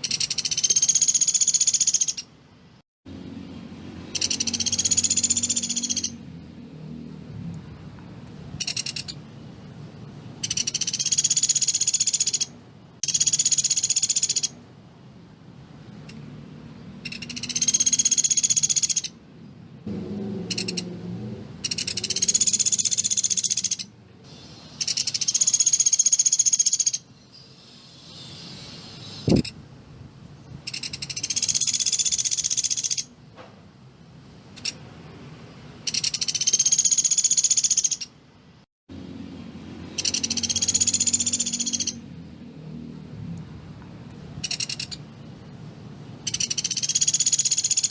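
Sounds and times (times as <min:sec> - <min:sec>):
bird rattling trill: 0:00.0 - 0:02.3, 0:04.0 - 0:06.2, 0:08.6 - 0:09.2, 0:10.4 - 0:14.6, 0:17.0 - 0:19.2, 0:20.5 - 0:20.9, 0:21.6 - 0:27.1, 0:30.6 - 0:33.1, 0:35.8 - 0:38.1, 0:39.9 - 0:42.0, 0:44.4 - 0:45.0, 0:46.2 - 0:47.9.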